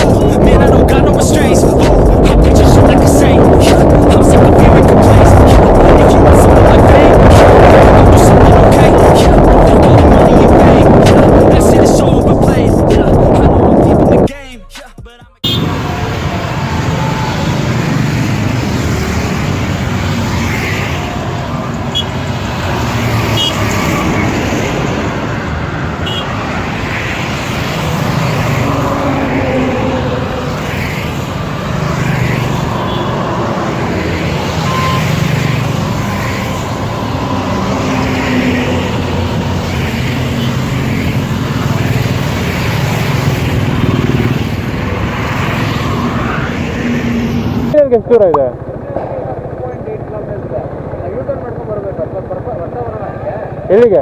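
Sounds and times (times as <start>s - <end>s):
traffic: 0.0s - 14.3s, 15.4s - 54.0s
wind noise: 0.0s - 14.3s, 15.6s - 47.8s
motorcycle engine: 15.5s - 53.8s.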